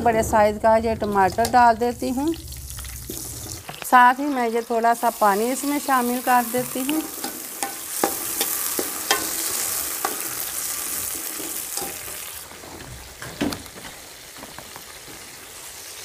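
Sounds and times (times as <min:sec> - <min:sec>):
vegetables sizzling in ghee: 0:00.0 - 0:13.2, 0:14.0 - 0:16.0
metal ladle clinking against pan: 0:06.6 - 0:10.3.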